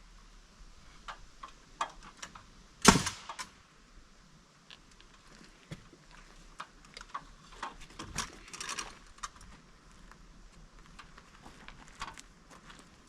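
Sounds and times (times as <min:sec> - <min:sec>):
rustling clatter: 0:06.0 - 0:09.6.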